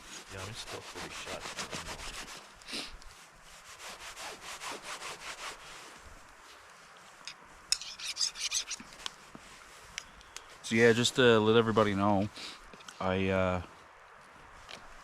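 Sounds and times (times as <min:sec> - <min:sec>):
knife sawing through steak: 0:00.3 - 0:02.4.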